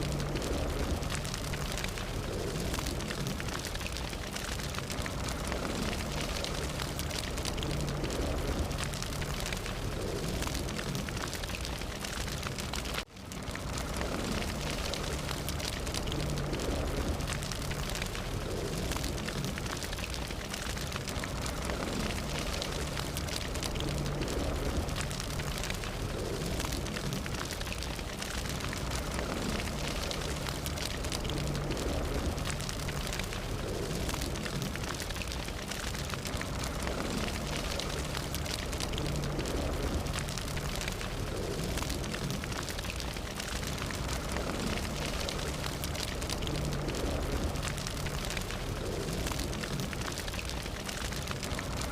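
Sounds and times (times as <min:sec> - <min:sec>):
fire crackling and popping: 0:00.0 - 0:51.9
low rumble of fire: 0:00.0 - 0:51.9.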